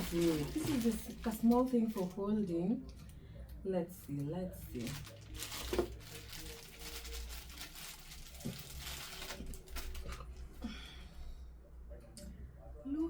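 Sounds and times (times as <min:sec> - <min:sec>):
packaging crinkling and rustling: 0:00.0 - 0:02.2, 0:04.6 - 0:10.4.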